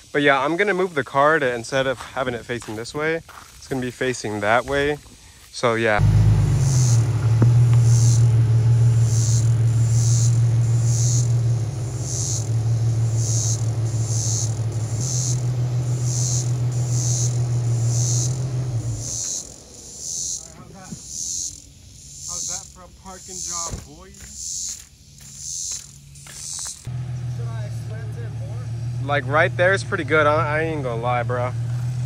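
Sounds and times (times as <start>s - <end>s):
insects calling: 0.0s - 32.0s
car engine idling: 5.9s - 24.6s, 25.4s - 32.0s.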